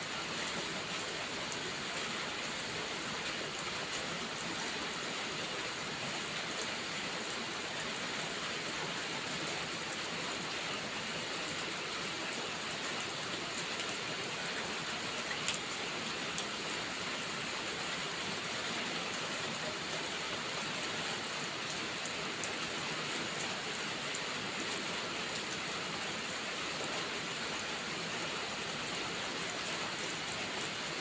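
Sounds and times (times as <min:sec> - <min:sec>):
steady rain falling: 0:00.0 - 0:31.0
raindrop ticks: 0:15.3 - 0:15.7.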